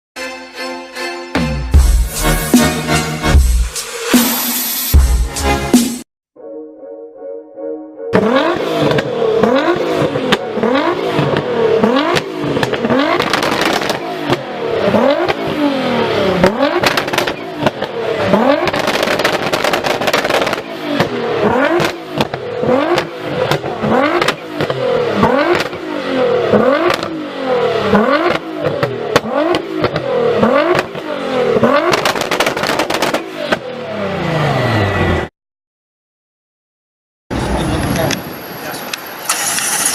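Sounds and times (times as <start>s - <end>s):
exhaust cracks: 8.2s - 15.6s, 16.4s - 25.8s, 28.1s - 33.3s
car engine revving: 8.2s - 35.3s.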